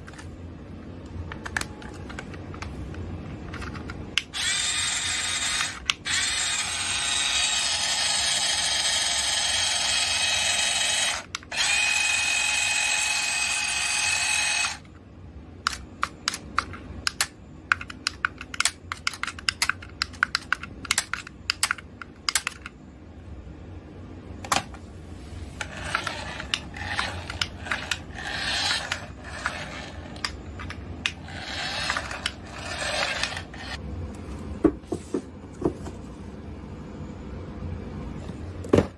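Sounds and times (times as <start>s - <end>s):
small electric motor whirring: 4.3s - 14.9s, 25.6s - 30.4s, 31.1s - 33.8s
plastic toy clicks and rattles: 15.7s - 22.7s.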